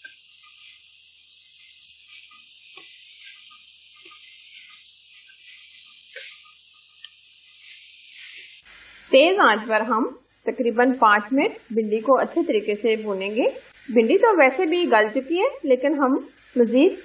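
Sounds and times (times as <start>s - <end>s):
food frying in a metal pan: 0.0s - 17.0s
spatula knocking and scraping: 1.8s - 8.6s.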